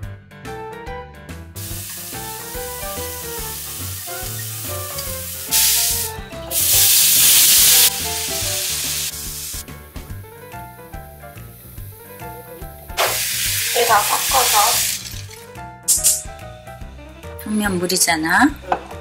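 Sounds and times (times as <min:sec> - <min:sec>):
background music: 0:00.0 - 0:19.0
food sizzling in frying pan: 0:01.6 - 0:15.4.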